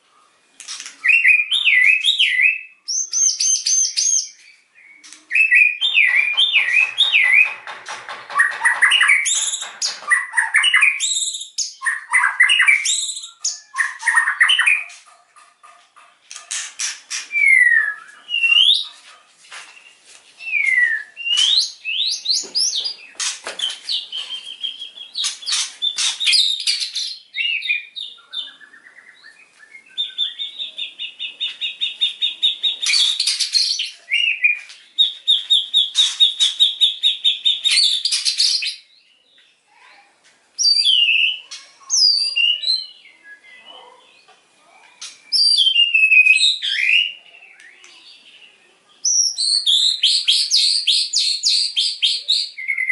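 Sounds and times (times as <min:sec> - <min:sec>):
bird singing varied whistles: 0:10.1 - 0:14.9, 0:17.4 - 0:18.8, 0:45.3 - 0:47.2.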